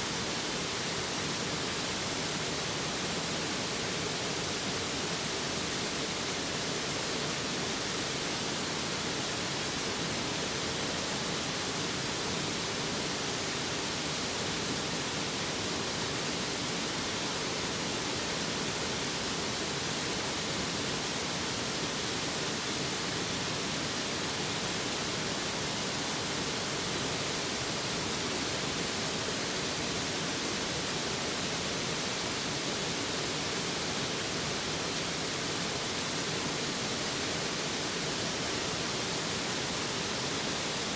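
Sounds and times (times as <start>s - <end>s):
mountain stream rushing: 0.0s - 40.9s.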